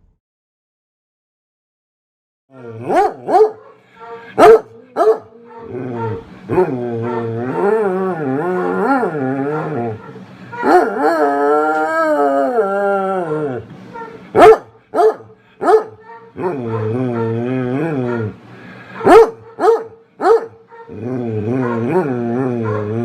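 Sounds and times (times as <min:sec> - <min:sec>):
dog howling: 0:02.5 - 0:13.7, 0:14.4 - 0:18.4, 0:19.0 - 0:23.0
dog barking: 0:02.8 - 0:05.4, 0:14.4 - 0:17.3, 0:19.0 - 0:20.9, 0:21.6 - 0:22.0.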